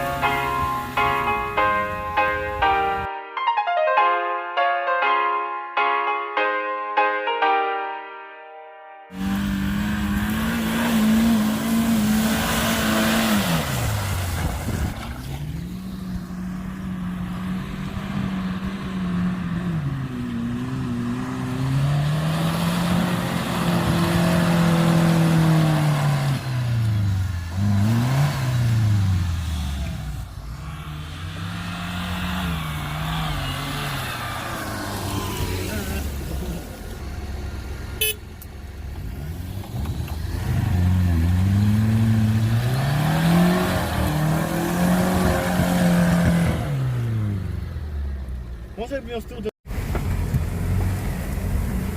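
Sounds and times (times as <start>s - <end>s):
off-road vehicle engine revving: 9.2s - 48.8s.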